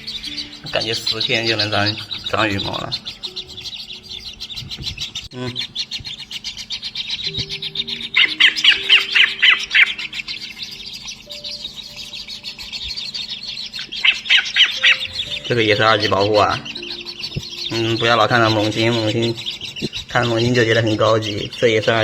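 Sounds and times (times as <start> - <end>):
nestlings chirping: 0.0 - 22.0.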